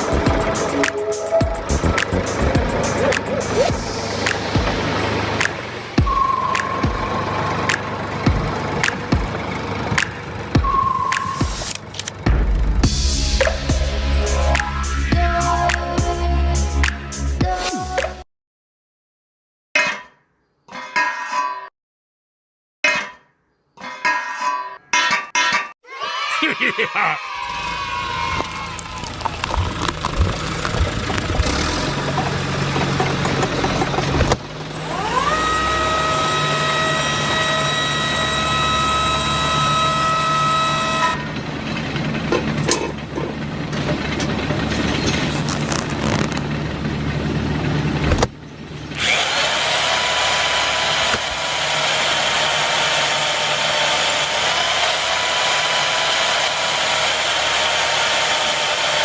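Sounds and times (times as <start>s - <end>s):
small electric motors whining: 34.8s - 41.2s, 48.9s - 59.0s.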